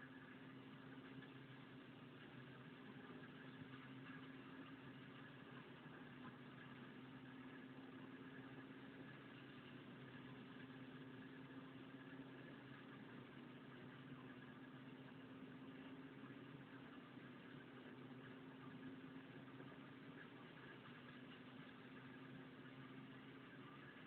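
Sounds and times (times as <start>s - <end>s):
faint mechanical hum: 0.0s - 24.0s.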